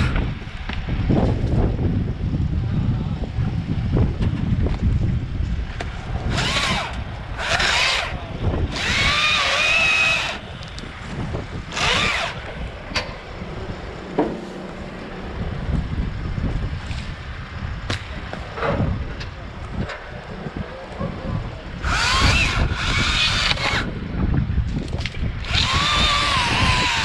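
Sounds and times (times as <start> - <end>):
wind buffeting microphone: 0.0 - 27.0
chainsaw cutting wood: 6.3 - 10.5, 11.7 - 12.5, 21.8 - 23.9, 25.4 - 27.0.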